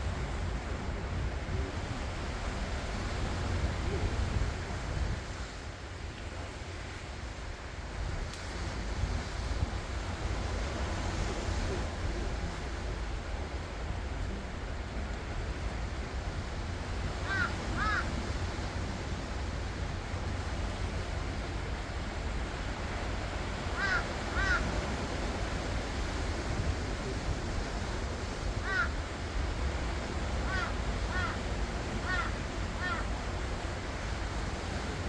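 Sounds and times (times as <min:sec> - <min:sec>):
ocean surf washing on shore: 0:00.0 - 0:35.0
wind rumbling on microphone: 0:00.0 - 0:35.0
bird calling: 0:17.3 - 0:18.1, 0:23.8 - 0:24.7, 0:28.6 - 0:28.9, 0:30.5 - 0:33.1.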